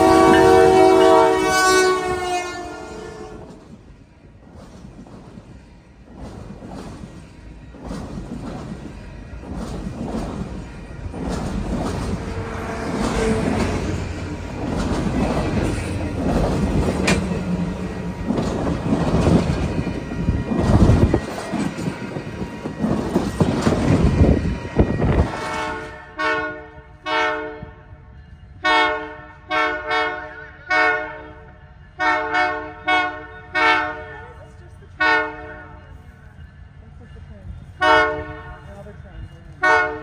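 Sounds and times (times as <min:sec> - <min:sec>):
locomotive horn blasts: 0:00.0 - 0:03.6, 0:24.8 - 0:28.0, 0:28.6 - 0:35.9, 0:37.7 - 0:38.7, 0:39.6 - 0:40.0
train wheels rumbling on rail: 0:00.0 - 0:40.0.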